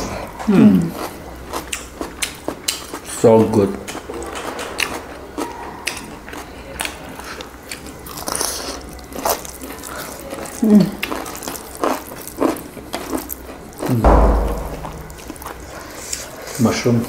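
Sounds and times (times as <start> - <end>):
people biting and chewing food: 0.4 - 14.0
loud low thud: 14.1 - 15.7.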